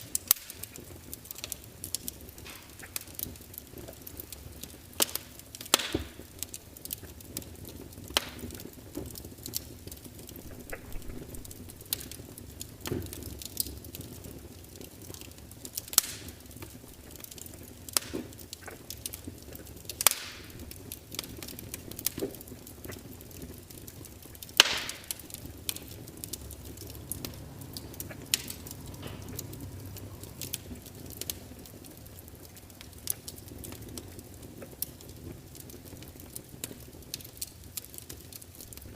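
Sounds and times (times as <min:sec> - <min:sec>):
low rustle of flames: 0:00.0 - 0:38.9
wood fire snaps and pops: 0:00.0 - 0:38.9.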